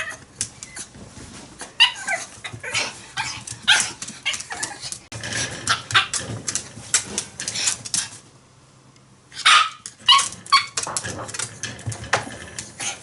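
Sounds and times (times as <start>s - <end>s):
dog barking and yipping: 1.8s - 4.8s, 5.7s - 6.3s, 9.4s - 11.0s.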